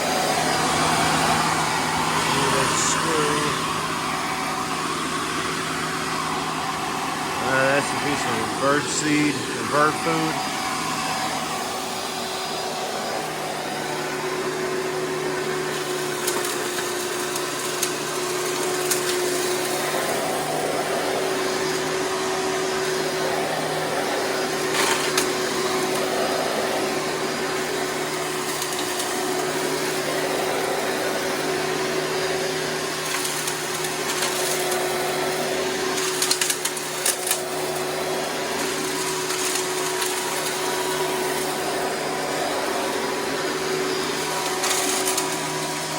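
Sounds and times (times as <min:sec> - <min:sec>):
vacuum cleaner motor hum: 0:00.0 - 0:45.9
debris clicking in vacuum: 0:15.7 - 0:20.2, 0:24.6 - 0:26.1, 0:28.3 - 0:30.1, 0:33.0 - 0:37.9, 0:38.5 - 0:41.5, 0:44.1 - 0:45.8.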